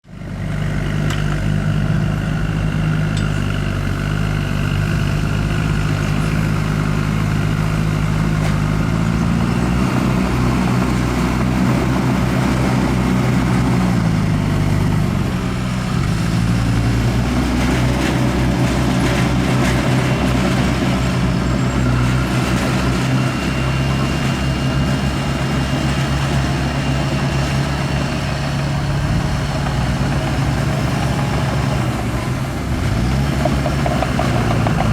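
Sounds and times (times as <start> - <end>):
heavy diesel engine running: 0.0 - 34.9.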